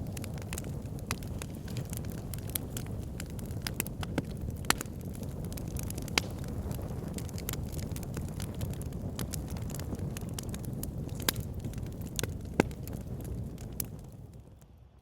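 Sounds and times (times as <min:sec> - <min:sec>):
fire crackling and popping: 0:00.0 - 0:15.0.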